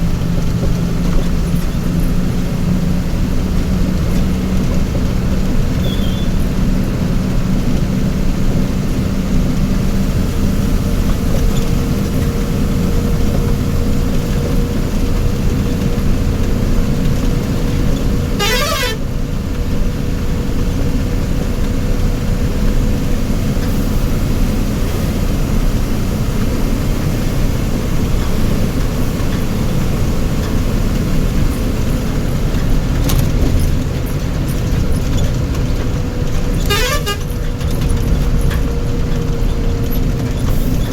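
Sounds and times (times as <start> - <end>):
vehicle engine and road noise: 0.0 - 40.9
warbling vehicle horn: 18.3 - 19.2, 36.6 - 37.4.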